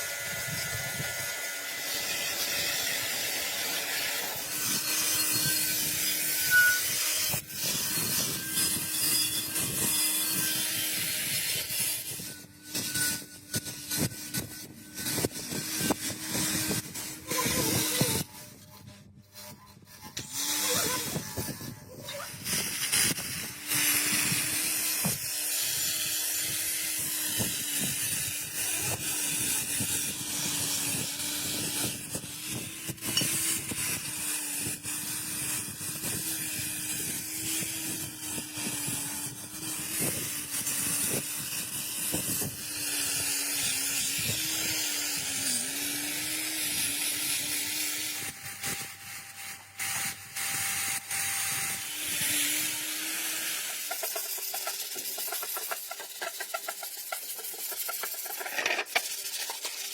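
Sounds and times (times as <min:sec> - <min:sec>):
spray tool hissing: 0:52.8 - 0:59.9.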